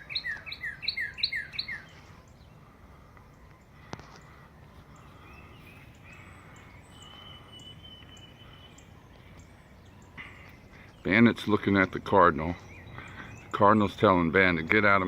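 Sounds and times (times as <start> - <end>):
bird whistle: 0.0 - 2.0, 5.4 - 9.1
small birds chipping: 0.0 - 15.0.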